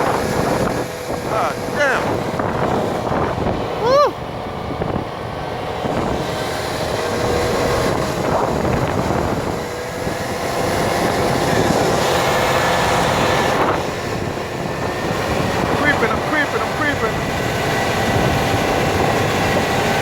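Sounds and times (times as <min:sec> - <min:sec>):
car engine and tyre noise: 0:00.0 - 0:20.0.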